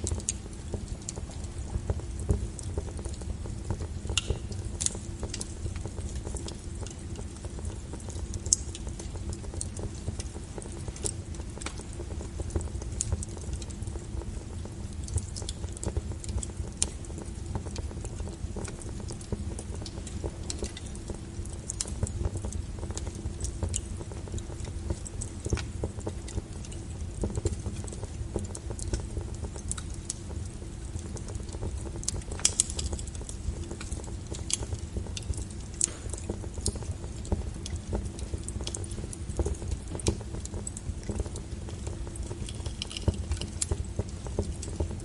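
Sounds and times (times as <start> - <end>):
low fire rumble: 0.0 - 45.0
wood fire crackling and popping: 0.0 - 45.0.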